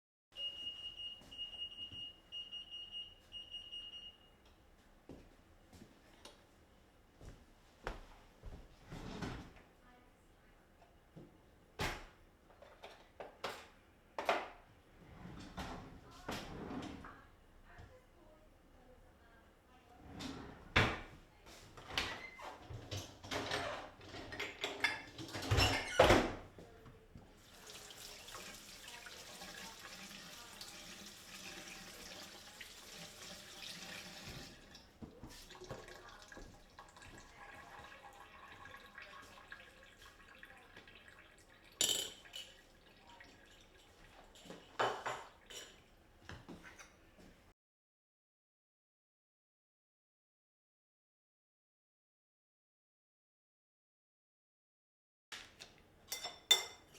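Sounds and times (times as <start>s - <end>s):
tap water running into sink: 27.4s - 45.6s.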